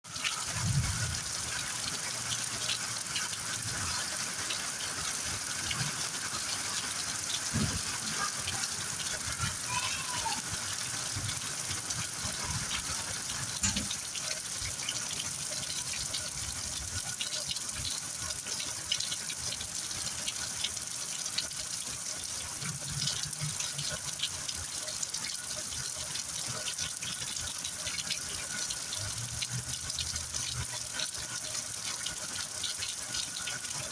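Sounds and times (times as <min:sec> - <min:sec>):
heavy rain falling: 0:00.1 - 0:19.1
raindrops ticking on surfaces: 0:00.1 - 0:33.9.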